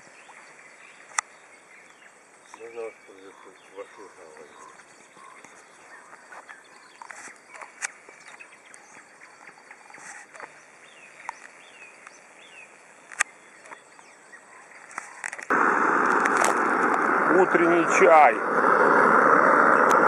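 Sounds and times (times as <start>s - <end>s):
bird chirps: 0.0s - 15.4s
sharp clicks: 13.0s - 13.8s
loud steady rushing noise: 15.5s - 20.0s.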